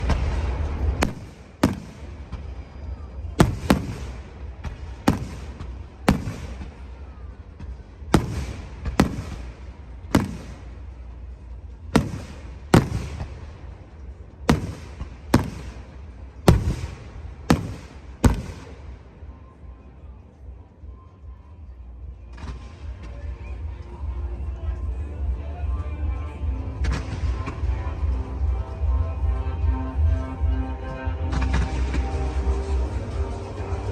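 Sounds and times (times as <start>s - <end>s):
fireworks bangs with echo: 0.0s - 19.4s
low steady rumble: 0.0s - 33.9s.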